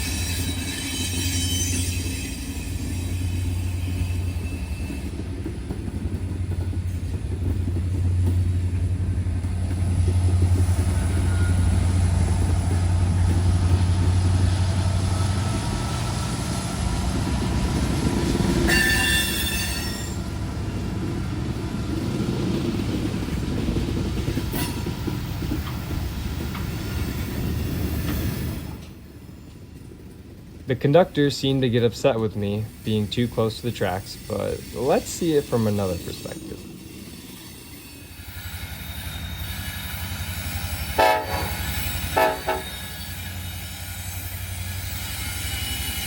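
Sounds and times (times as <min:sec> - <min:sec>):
high-pitched train squeal: 0:00.0 - 0:05.4, 0:10.3 - 0:17.3, 0:18.2 - 0:20.4, 0:24.4 - 0:29.0, 0:32.0 - 0:46.0
diesel locomotive engine drone: 0:00.0 - 0:46.0.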